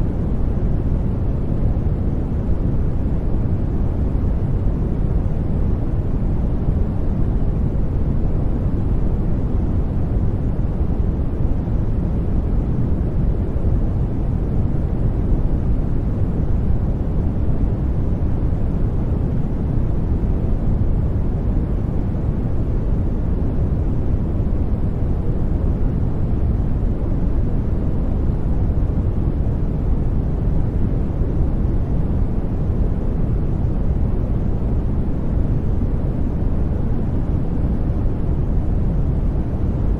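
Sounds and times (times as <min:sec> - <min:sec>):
deep-toned white noise: 0:00.0 - 0:39.9.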